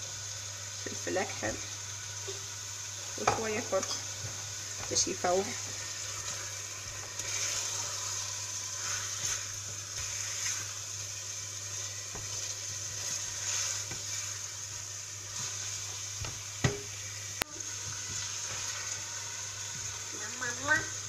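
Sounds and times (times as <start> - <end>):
food sizzling in oil: 0.0 - 21.0
light knocks of stirring pot: 16.2 - 16.9.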